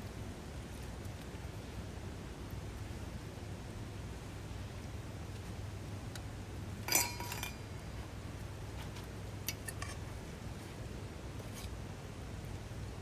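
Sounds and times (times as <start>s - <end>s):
hard objects clinking together: 6.9s - 7.8s.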